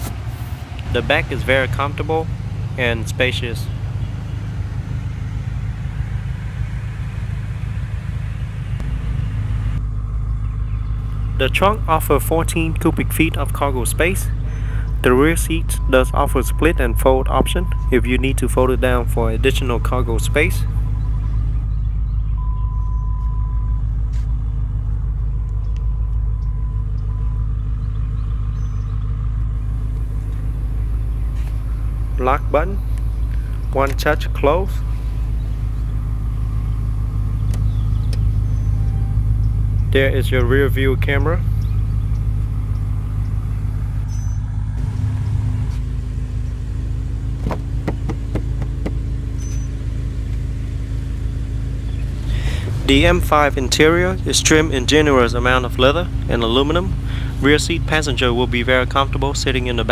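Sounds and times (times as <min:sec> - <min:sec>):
car engine idling: 0:00.0 - 0:59.9
sharp clicks: 0:25.4 - 0:27.2, 0:37.4 - 0:38.4, 0:41.2 - 0:43.4.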